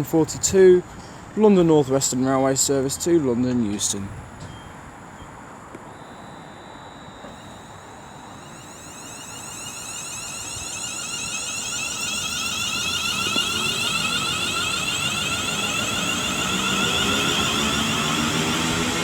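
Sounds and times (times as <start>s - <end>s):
electric train whine rising: 4.5s - 19.0s.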